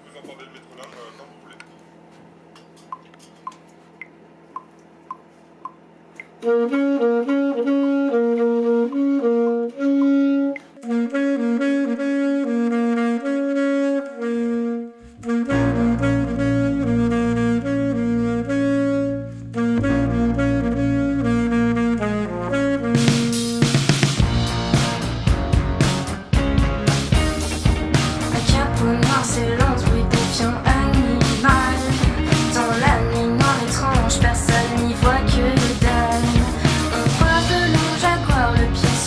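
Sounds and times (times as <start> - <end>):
metronome clicking: 8.8 - 9.1, 9.9 - 10.9
heavy low bass: 15.1 - 39.0
rock band instrumental: 22.8 - 39.0.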